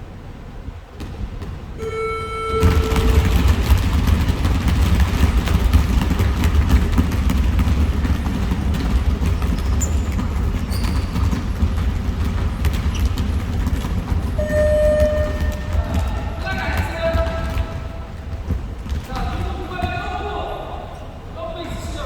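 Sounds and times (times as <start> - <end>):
low rumble of a gym: 0.0 - 22.0
high squeaks: 1.8 - 3.9, 14.4 - 16.5
knocks: 2.3 - 20.0.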